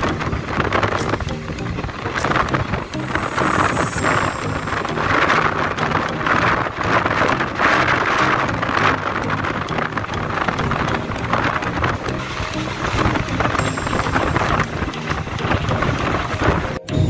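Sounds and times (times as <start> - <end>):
train rushing at speed: 0.3 - 6.9.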